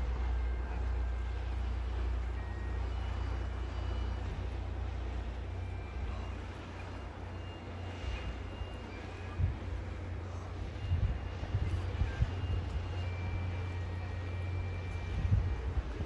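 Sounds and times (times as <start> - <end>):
coach engine and road noise: 0.0 - 16.0.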